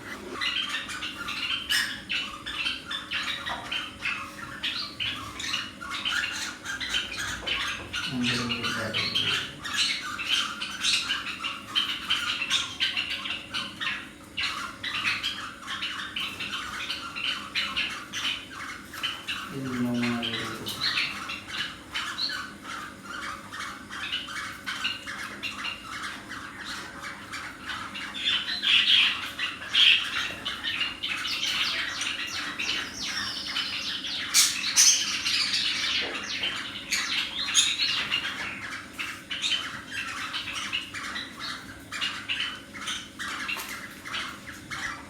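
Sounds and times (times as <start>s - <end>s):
cockatiels chirping and squawking: 0.0s - 45.0s.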